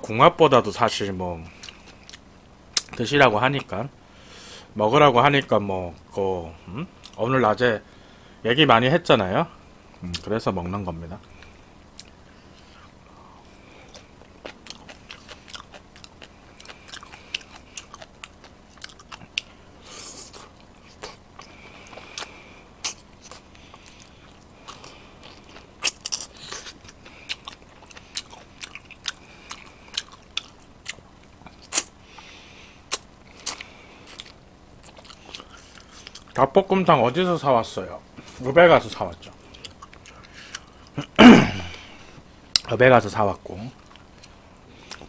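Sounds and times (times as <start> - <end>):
chewing with wet mouth clicks: 1.6 - 3.0, 11.2 - 12.2, 13.8 - 19.6, 20.3 - 32.3, 32.9 - 36.4, 38.9 - 41.0, 43.8 - 45.0.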